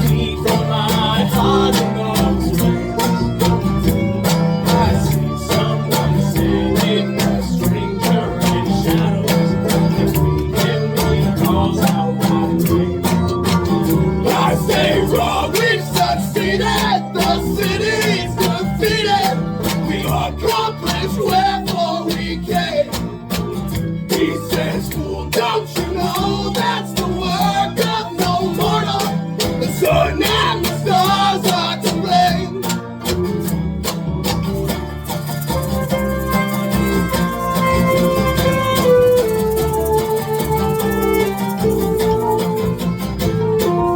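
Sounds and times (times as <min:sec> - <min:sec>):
folk band playing: 0:00.0 - 0:43.9
strummed acoustic guitar: 0:00.0 - 0:43.9.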